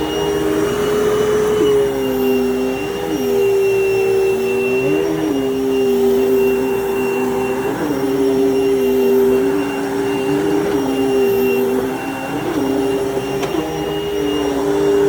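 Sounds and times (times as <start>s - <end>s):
vacuum cleaner running on carpet: 0.0s - 15.0s.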